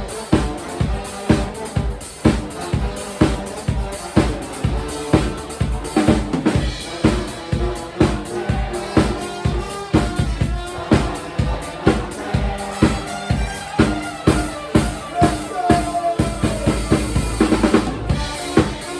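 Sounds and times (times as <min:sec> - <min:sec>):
live band playing: 0:00.0 - 0:18.9.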